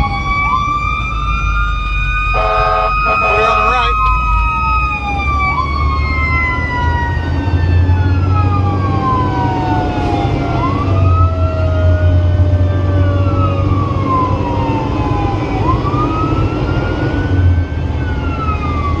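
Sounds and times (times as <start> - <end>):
fire engine siren wailing: 0.0 - 19.0
truck engine droning: 1.2 - 4.9
lower siren tone winding down: 1.5 - 6.4.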